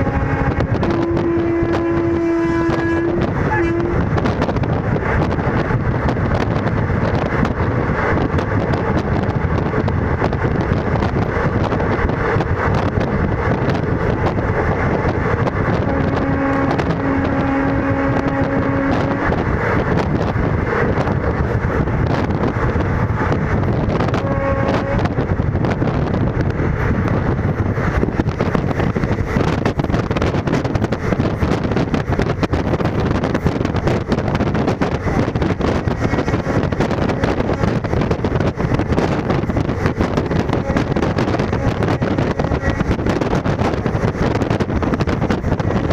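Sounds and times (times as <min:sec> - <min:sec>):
train rumble: 0:00.0 - 0:45.9
wind rushing: 0:00.0 - 0:45.9.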